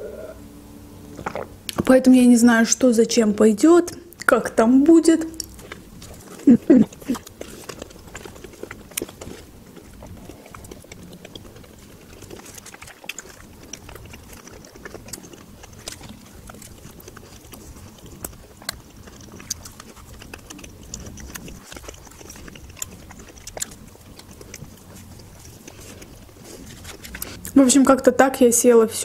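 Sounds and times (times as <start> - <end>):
close-up chewing: 4.1 - 28.1
wet mouth clicks and smacks: 5.4 - 27.6.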